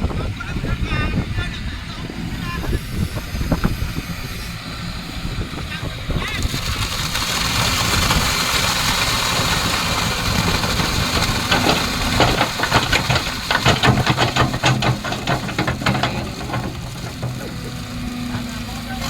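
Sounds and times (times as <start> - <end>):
excavator diesel engine running: 1.2 - 19.0
sharp metallic clanks: 10.5 - 18.7.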